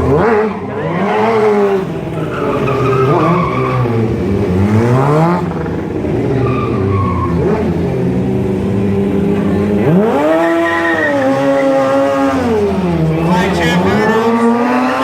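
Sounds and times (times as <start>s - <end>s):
motorcycle engine revving: 0.0s - 15.0s
tyre squeal: 0.6s - 4.3s, 6.2s - 7.5s, 10.1s - 12.6s.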